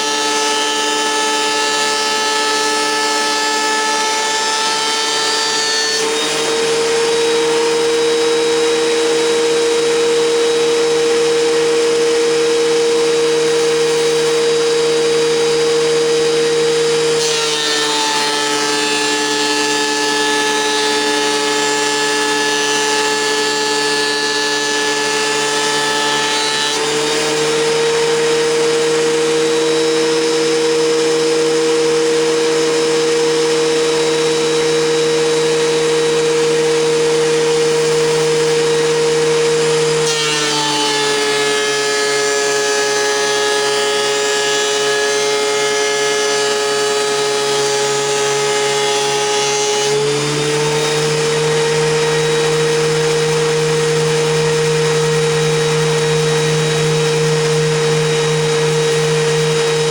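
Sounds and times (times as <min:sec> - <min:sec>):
thickness planer whining: 0:00.0 - 0:59.9
wood cutting rush: 0:00.0 - 0:59.9.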